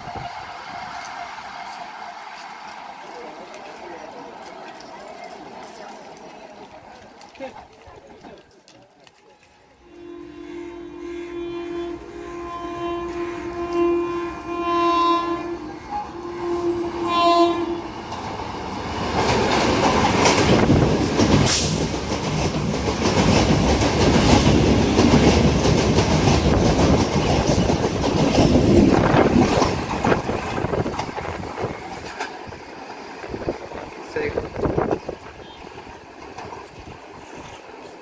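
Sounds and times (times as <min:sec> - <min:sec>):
train horn blasts: 0:09.8 - 0:18.0
train wheels rushing and clacking: 0:17.9 - 0:38.0.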